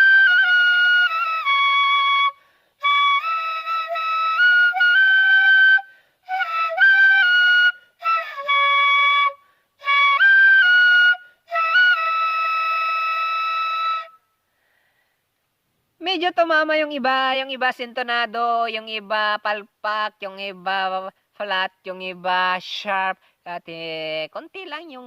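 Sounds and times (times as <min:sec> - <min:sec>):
wind instrument melody: 0:00.0 - 0:14.2.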